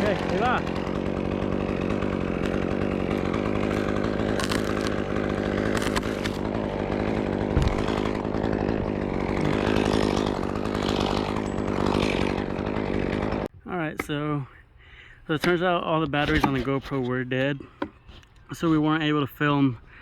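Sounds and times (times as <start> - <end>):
chainsaw engine running: 0.0 - 13.5
low thump: 7.5 - 7.9.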